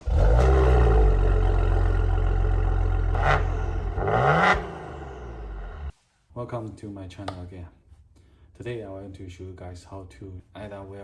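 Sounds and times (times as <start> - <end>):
car engine running and revving: 0.0 - 5.9.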